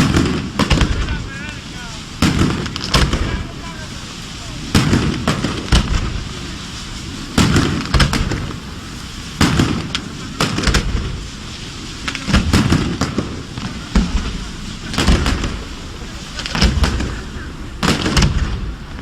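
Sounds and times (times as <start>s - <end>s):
firework shell bursts: 0.0s - 19.0s
rumbling echo and crackle: 0.0s - 19.0s.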